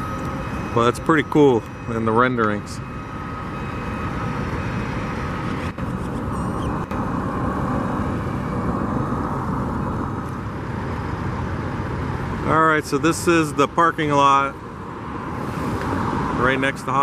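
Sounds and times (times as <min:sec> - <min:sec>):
faint steady tone: 0:00.0 - 0:16.8
road traffic rumbling hiss: 0:00.0 - 0:17.0.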